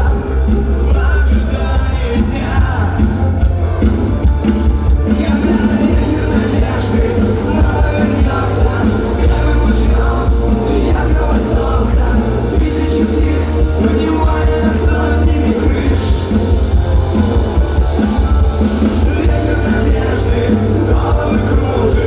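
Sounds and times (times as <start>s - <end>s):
punk rock band playing: 0.0s - 22.0s.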